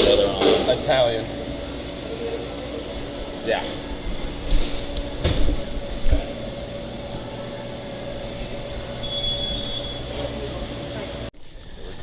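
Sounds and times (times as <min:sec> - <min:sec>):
steady machine hum: 0:00.0 - 0:12.0
short high beep: 0:09.0 - 0:10.1.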